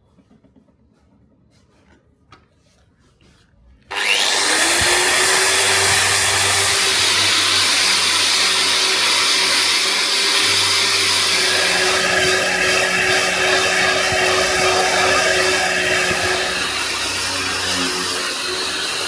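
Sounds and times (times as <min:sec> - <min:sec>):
power tool motor whining: 0:03.9 - 0:19.0.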